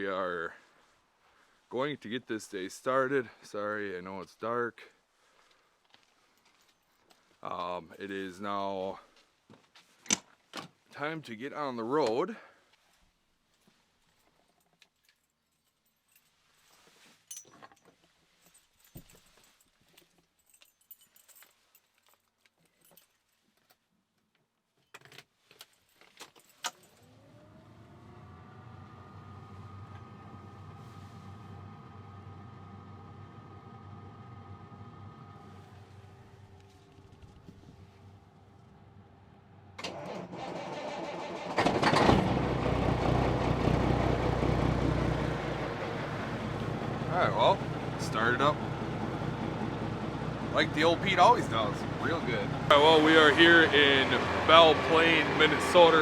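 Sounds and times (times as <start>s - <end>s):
keys jangling: 14.7s - 23.2s, 24.9s - 27.0s
diesel engine idling: 27.2s - 56.0s
low hum with rising whine: 27.5s - 39.8s, 43.5s - 56.0s
starter motor cranking: 39.8s - 43.0s.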